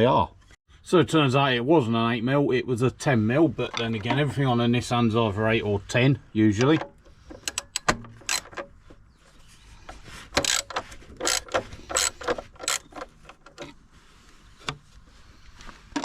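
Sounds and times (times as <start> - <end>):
metal tools clinking: 6.5 - 9.0
socket ratchet clicking: 6.9 - 8.7, 10.4 - 13.6.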